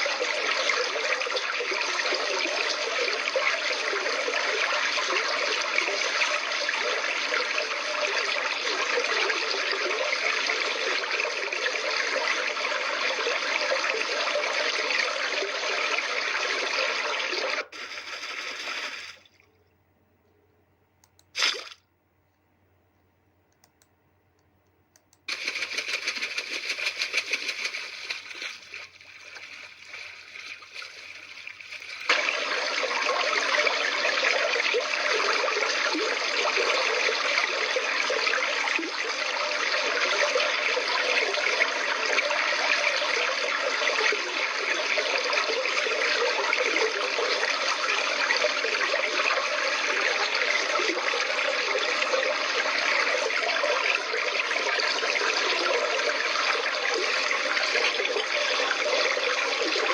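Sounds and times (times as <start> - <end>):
water rushing: 17.5 - 19.4, 25.3 - 33.2.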